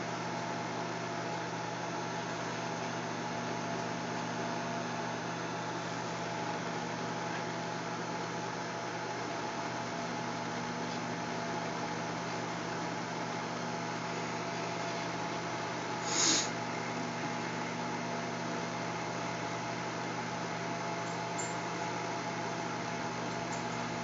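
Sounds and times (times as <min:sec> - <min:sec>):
microwave oven humming: 0:00.0 - 0:24.0
brief hiss: 0:16.0 - 0:16.5.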